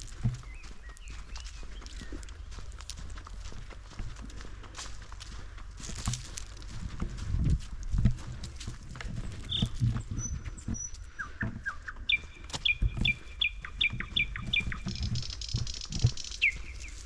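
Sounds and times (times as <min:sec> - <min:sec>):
small birds calling: 0:00.0 - 0:03.7, 0:09.3 - 0:17.0
footsteps on forest floor: 0:00.0 - 0:17.0.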